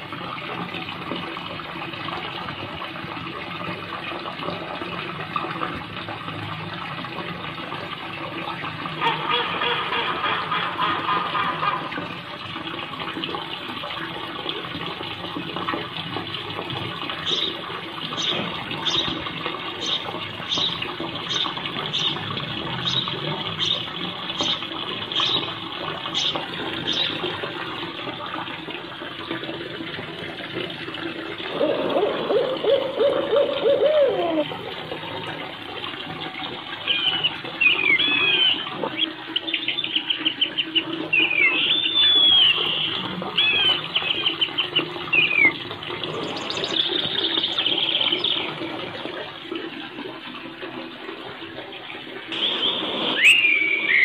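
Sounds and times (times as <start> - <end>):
birds chirping and trilling: 17.2 - 27.2, 36.9 - 48.5, 52.4 - 54.0
low drawn-out hooting call: 31.5 - 34.8.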